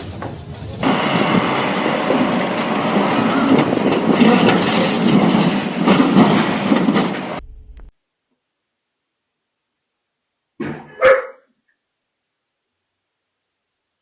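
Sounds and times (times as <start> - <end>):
vehicle rumble and rattle: 0.0 - 7.9.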